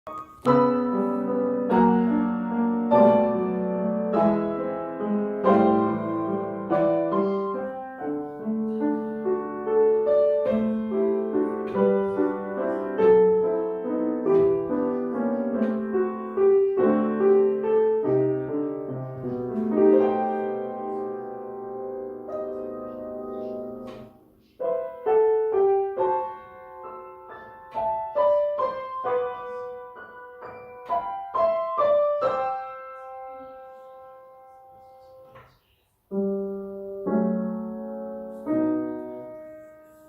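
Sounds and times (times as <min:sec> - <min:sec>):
solo piano: 0:00.0 - 0:40.0.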